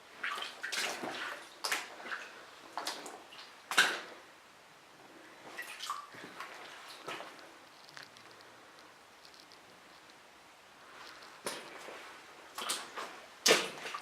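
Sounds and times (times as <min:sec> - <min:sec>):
boots splashing through water: 0:00.2 - 0:04.2, 0:05.5 - 0:07.4, 0:11.4 - 0:14.0.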